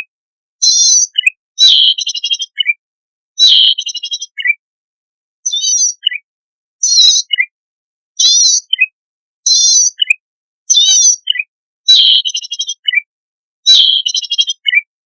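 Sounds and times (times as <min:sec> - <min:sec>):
lower bird chirps: 0:00.6 - 0:02.8, 0:03.4 - 0:04.6, 0:05.4 - 0:07.5, 0:08.2 - 0:14.9
buzzy bird warbling phrases: 0:00.8 - 0:02.7, 0:03.4 - 0:04.5, 0:05.5 - 0:06.2, 0:13.7 - 0:14.8.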